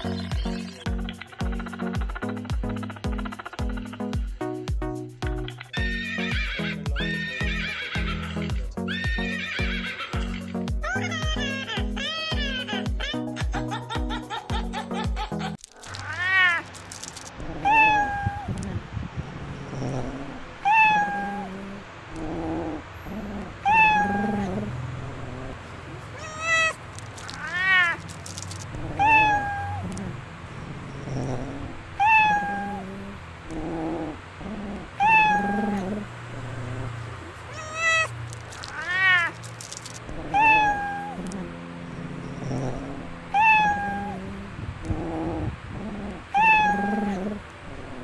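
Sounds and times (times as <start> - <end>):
cat meowing: 5.8 - 12.7, 15.8 - 16.7, 17.4 - 18.6, 20.6 - 21.7, 23.6 - 24.7, 26.1 - 30.2, 32.0 - 33.1, 35.0 - 36.8, 37.5 - 41.5, 43.3 - 44.4, 46.3 - 47.4.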